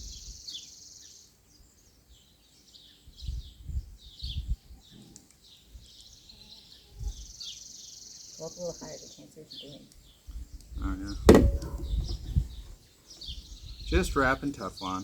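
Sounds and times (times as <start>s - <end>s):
small birds chirping: 0.0s - 15.0s
low thumps: 11.0s - 12.6s.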